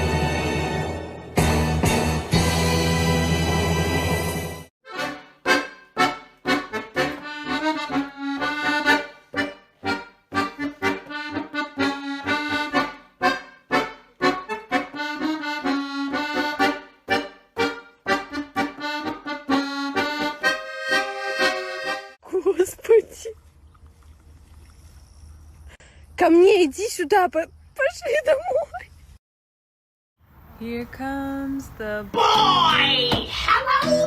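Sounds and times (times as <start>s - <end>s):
accordion playing lively tune: 4.8s - 22.2s.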